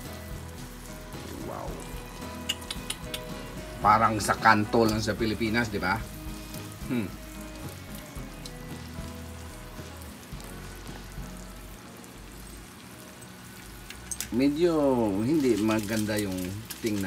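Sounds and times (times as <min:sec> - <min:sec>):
sugar syrup boiling and sizzling: 0:00.0 - 0:17.0.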